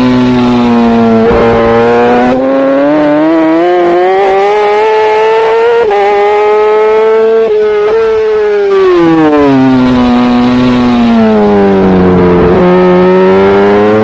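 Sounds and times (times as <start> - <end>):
superbike engine revving: 0.0 - 7.6.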